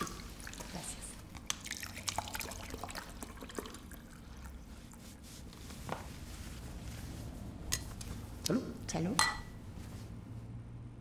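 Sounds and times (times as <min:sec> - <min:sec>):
juice pouring into glasses: 0:00.0 - 0:04.9.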